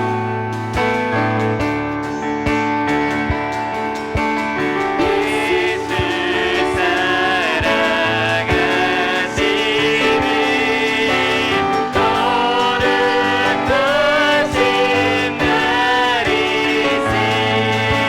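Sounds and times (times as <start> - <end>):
worship team singing a hymn: 4.0 - 18.0.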